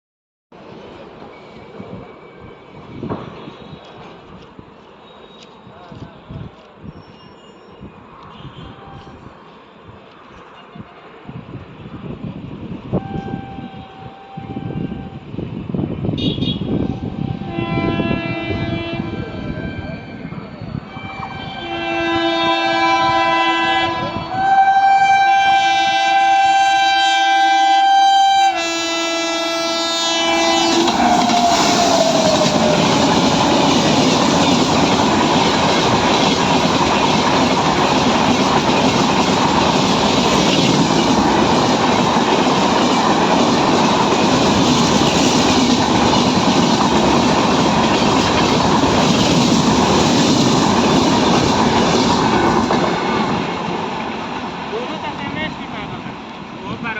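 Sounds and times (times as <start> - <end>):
train passing at speed: 0.5 - 56.9
locomotive air horn chord: 13.0 - 15.2, 16.2 - 19.3, 21.0 - 32.2.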